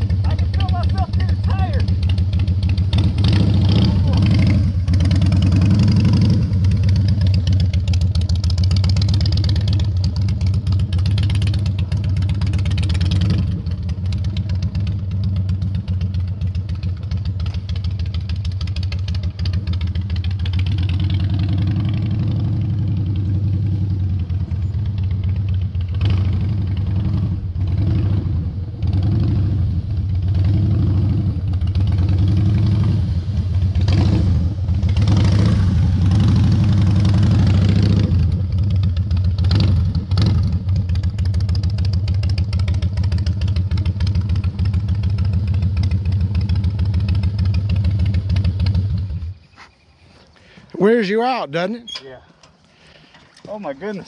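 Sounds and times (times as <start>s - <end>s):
motorcycle engine idling with blips: 6.6s - 20.7s, 24.0s - 26.9s, 38.5s - 50.0s.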